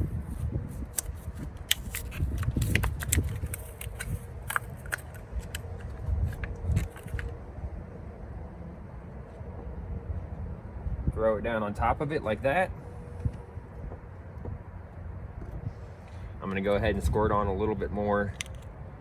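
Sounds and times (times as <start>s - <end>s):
plastic package clicking and crackling: 0.9s - 7.3s.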